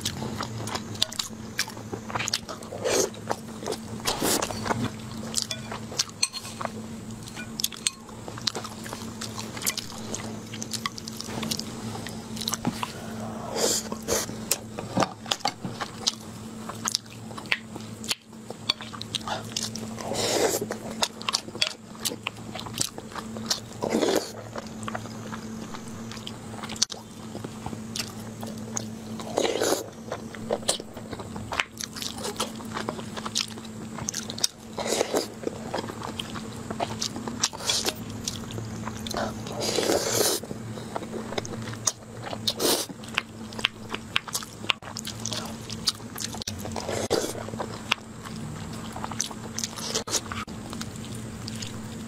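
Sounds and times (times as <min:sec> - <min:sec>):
close chewing with wet mouth clicks: 0:15.3 - 0:52.0.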